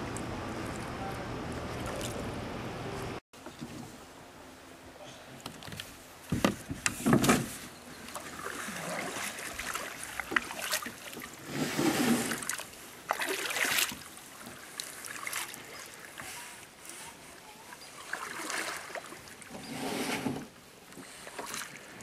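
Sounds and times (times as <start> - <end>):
paddle strokes splashing water: 8.0 - 20.2, 20.9 - 22.0.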